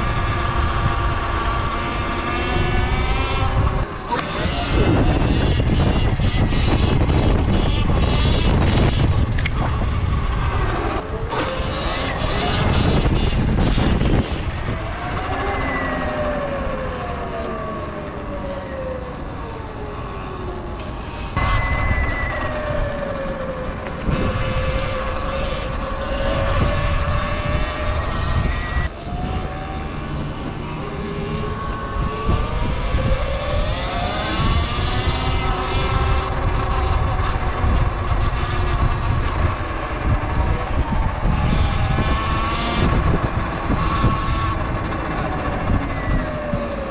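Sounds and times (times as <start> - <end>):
electric motor whining: 0.0 - 46.9
wind rumble on microphone: 0.0 - 46.9.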